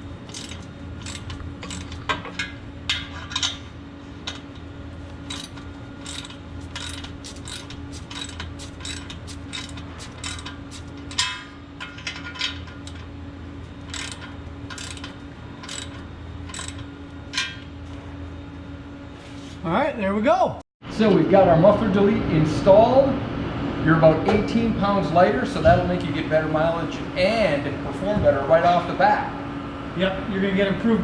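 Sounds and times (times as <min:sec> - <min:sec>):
low hum: 0:00.0 - 0:19.2
ratchet wrench clicking: 0:00.3 - 0:02.0, 0:05.3 - 0:11.4, 0:13.8 - 0:16.9.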